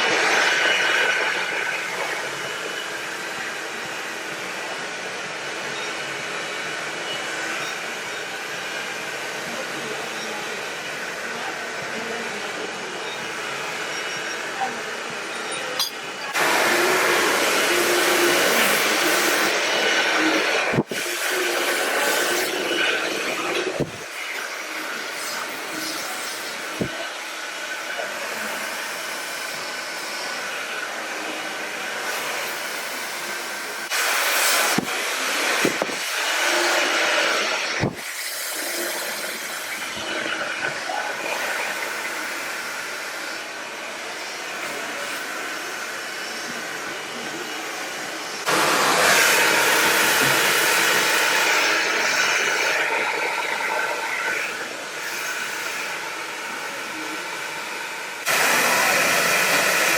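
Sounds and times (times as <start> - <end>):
hair dryer blowing: 15.8 - 59.9.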